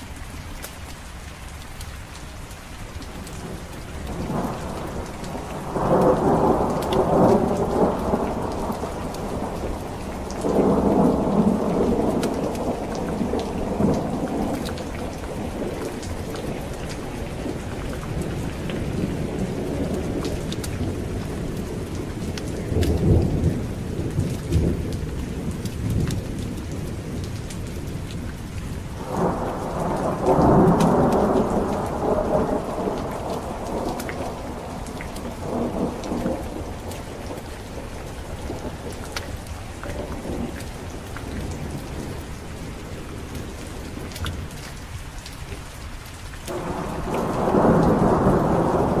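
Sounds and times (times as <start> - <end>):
heavy rain: 0.0 - 49.0
thunder rumbling: 3.2 - 44.5, 46.5 - 49.0.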